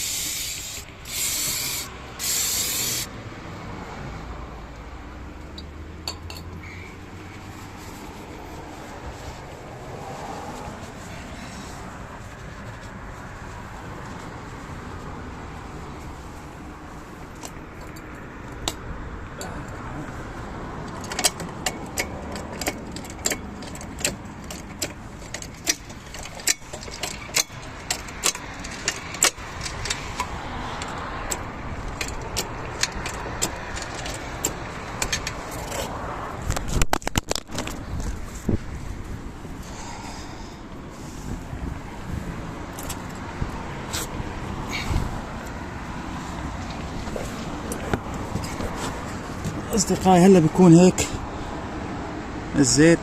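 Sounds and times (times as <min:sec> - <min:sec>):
metal tools clicking and clinking: 0:20.9 - 0:30.3.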